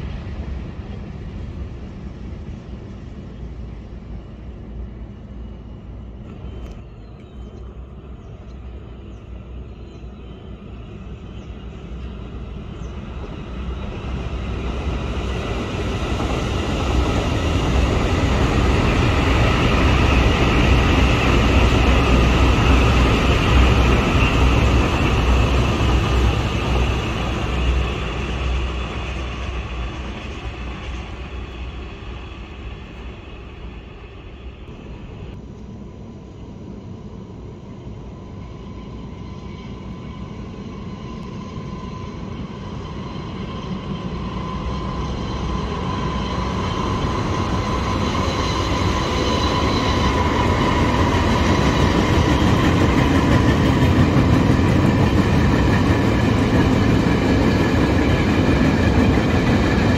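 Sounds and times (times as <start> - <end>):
train wheels rumbling on rails: 0.0 - 35.6, 36.5 - 59.9.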